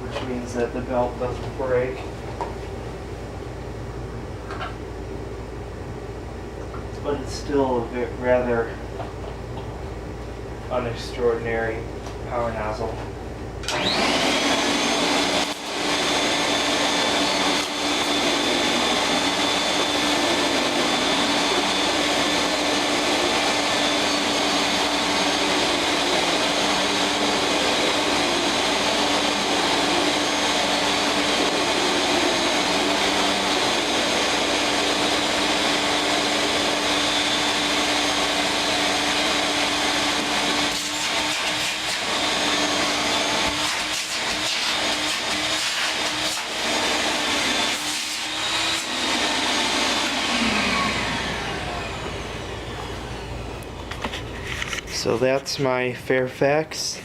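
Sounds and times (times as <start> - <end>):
vacuum cleaner running: 13.6 - 55.6.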